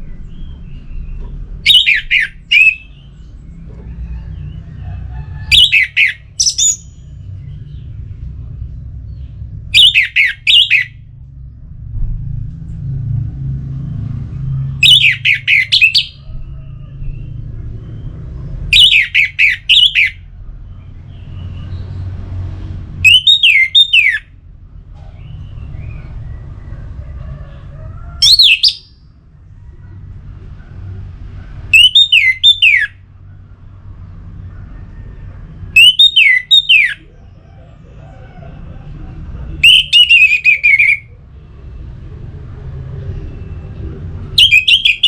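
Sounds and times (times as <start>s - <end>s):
steady low rumble: 0.0s - 5.6s, 6.2s - 18.8s, 19.6s - 23.1s
thrush calling: 1.6s - 3.1s, 5.4s - 6.9s, 9.7s - 11.0s, 14.8s - 16.6s, 18.7s - 20.2s, 23.0s - 24.3s, 27.4s - 29.0s, 31.7s - 33.0s, 35.7s - 41.2s, 44.3s - 45.0s.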